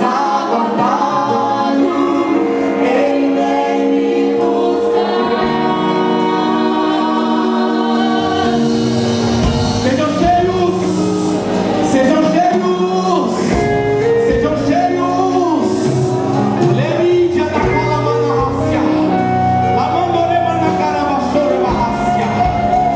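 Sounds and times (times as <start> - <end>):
gospel singing: 0.0 - 22.9
held instrumental chords: 0.0 - 22.9
drum hits and cymbals: 7.2 - 19.2, 20.6 - 22.9.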